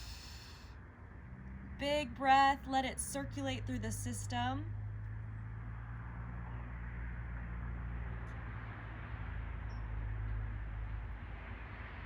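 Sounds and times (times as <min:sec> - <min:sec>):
background hiss: 0:00.0 - 0:00.6
low electrical hum: 0:00.0 - 0:06.0.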